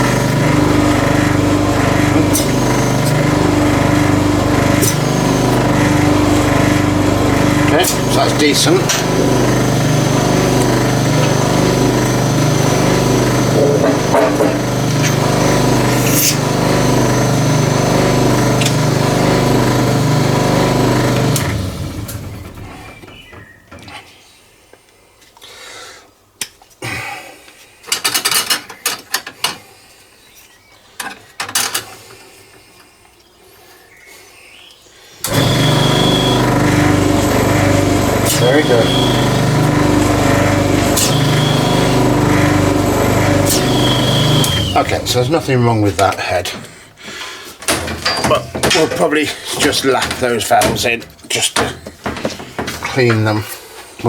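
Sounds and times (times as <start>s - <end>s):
vacuum pump motor running: 0.0s - 23.3s, 35.2s - 46.6s, 47.7s - 51.0s.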